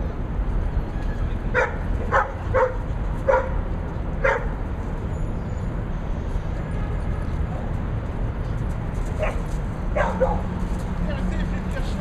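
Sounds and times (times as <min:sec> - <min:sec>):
dog yipping: 0:01.6 - 0:03.6, 0:04.2 - 0:04.5, 0:10.0 - 0:10.5.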